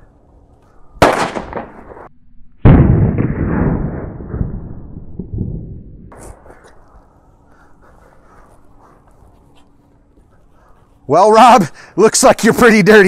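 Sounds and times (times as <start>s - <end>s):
paint grenade exploding: 1.0s - 4.6s.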